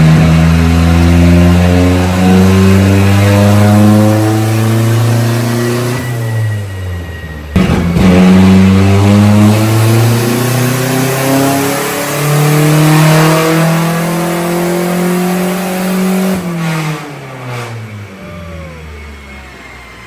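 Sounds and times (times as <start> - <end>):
pickup engine revving on dyno: 0.0 - 6.4, 7.6 - 20.0
dyno rollers winding down: 17.7 - 20.0.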